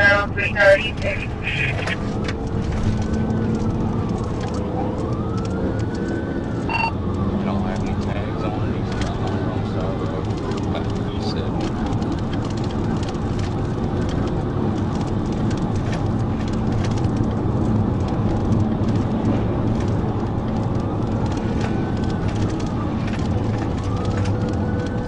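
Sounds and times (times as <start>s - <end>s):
car engine and road noise: 0.0s - 25.0s
faint siren wail: 3.0s - 9.6s, 20.2s - 25.0s.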